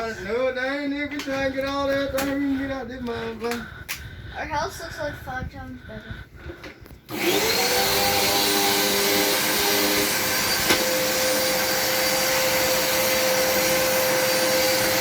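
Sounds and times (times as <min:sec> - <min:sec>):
vacuum cleaner motor whining: 0:07.1 - 0:15.0.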